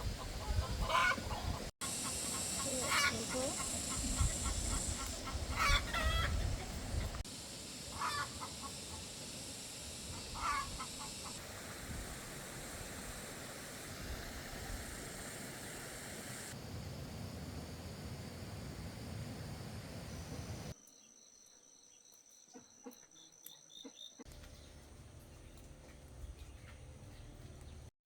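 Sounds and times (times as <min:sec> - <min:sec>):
chicken clucking: 0:00.2 - 0:07.1
steady hiss: 0:01.8 - 0:20.8.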